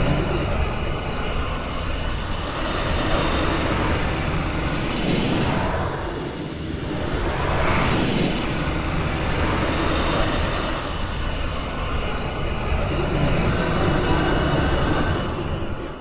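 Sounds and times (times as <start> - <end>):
wind-like hiss: 1.2 - 12.6
low rumble: 2.2 - 11.8.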